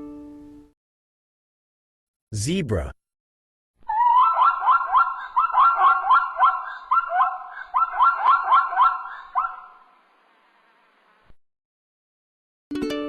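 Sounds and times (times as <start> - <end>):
zebra barking: 3.9 - 9.9.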